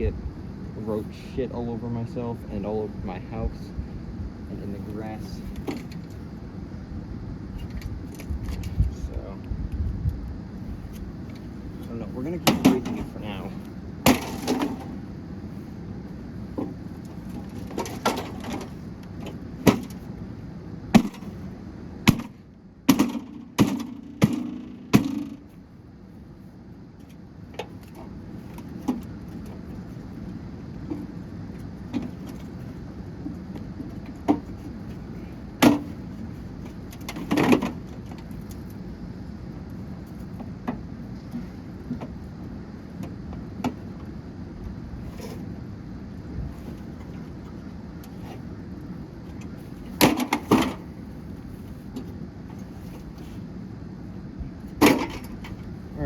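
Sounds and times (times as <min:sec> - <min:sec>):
hard blows smashing a microwave: 0:14.0 - 0:15.1, 0:19.6 - 0:20.0, 0:20.9 - 0:21.4, 0:22.0 - 0:25.4.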